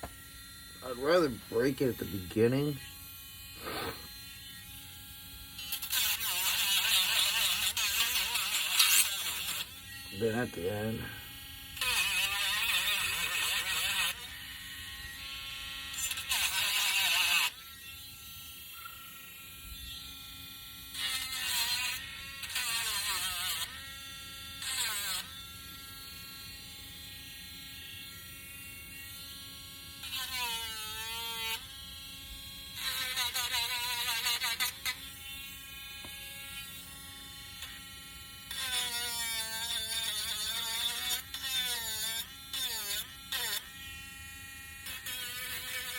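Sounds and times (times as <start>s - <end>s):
sanding wood: 3.6s - 4.1s.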